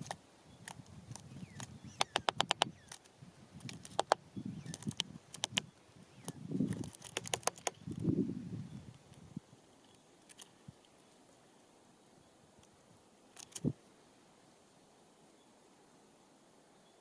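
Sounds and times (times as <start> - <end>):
birds pecking at feeders: 0.0 - 11.8.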